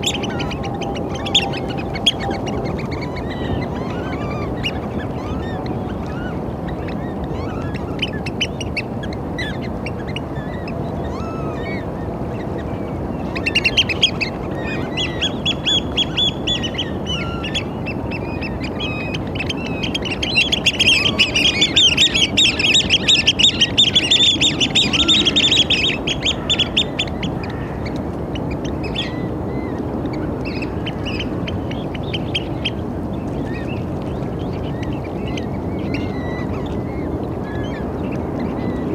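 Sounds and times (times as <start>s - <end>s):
low background rush: 0.0s - 38.9s
oystercatchers piping calls: 13.4s - 27.8s.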